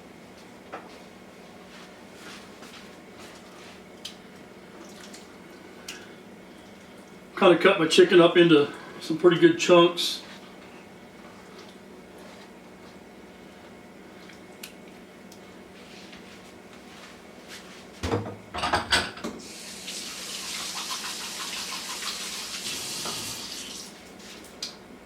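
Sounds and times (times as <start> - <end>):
tap water running into sink: 19.6 - 23.9.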